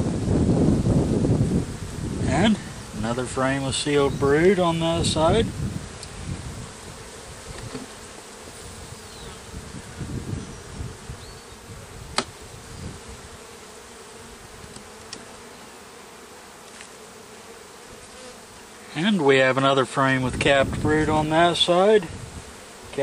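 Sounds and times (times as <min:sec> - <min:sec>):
bees buzzing: 0:00.0 - 0:23.0
sharp click: 0:12.2 - 0:12.4.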